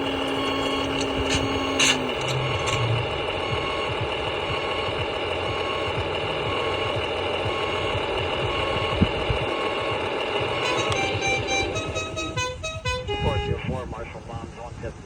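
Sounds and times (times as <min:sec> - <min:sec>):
toy truck motor whirring: 0:00.0 - 0:13.2.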